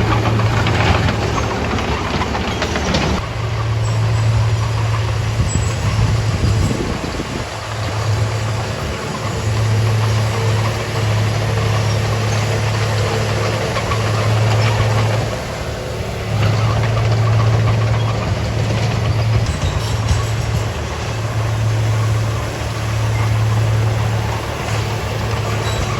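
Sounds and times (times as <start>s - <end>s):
bulldozer diesel engine: 0.0s - 25.9s.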